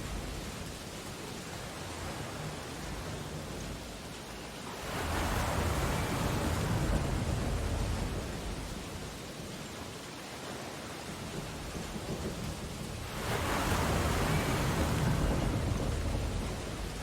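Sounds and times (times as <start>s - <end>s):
ocean waves washing: 0.0s - 17.0s
wave breaking and receding: 4.8s - 9.0s, 11.4s - 17.0s.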